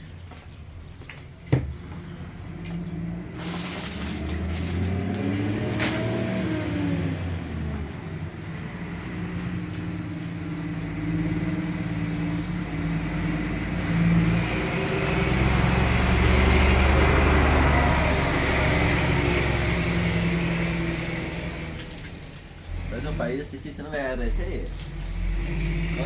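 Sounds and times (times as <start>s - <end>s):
vehicle engine rumble: 0.0s - 26.0s.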